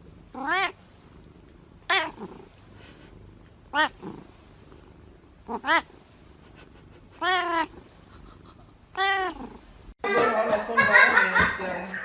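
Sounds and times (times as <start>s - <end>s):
cat meowing: 0.4s - 0.8s, 1.8s - 2.3s, 3.7s - 4.1s, 5.5s - 5.9s, 7.2s - 7.8s, 8.9s - 9.5s.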